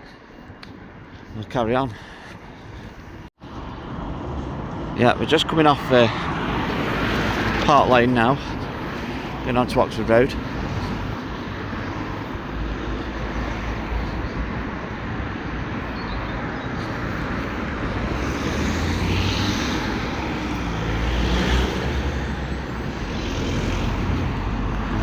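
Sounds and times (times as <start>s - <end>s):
road traffic rumble: 0.1s - 25.0s.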